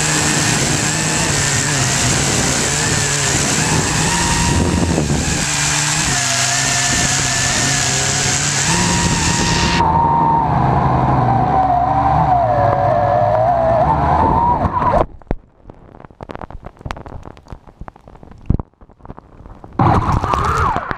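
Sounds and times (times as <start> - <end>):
quadcopter propellers whining: 0.0 - 9.9.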